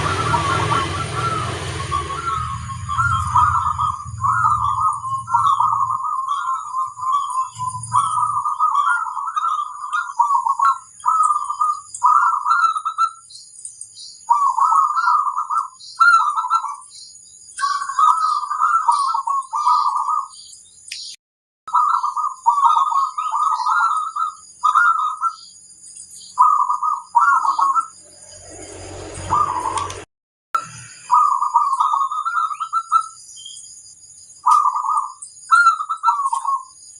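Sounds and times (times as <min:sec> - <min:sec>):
dove cooing: 0:00.0 - 0:13.2, 0:14.3 - 0:16.8, 0:17.6 - 0:20.4, 0:21.7 - 0:25.5, 0:26.4 - 0:28.0, 0:29.2 - 0:30.0, 0:31.1 - 0:33.2, 0:34.4 - 0:36.7.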